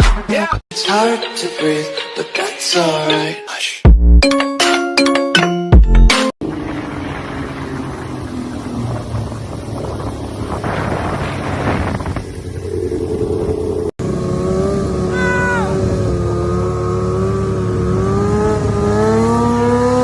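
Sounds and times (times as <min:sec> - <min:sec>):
motorcycle engines running: 0:06.4 - 0:20.0.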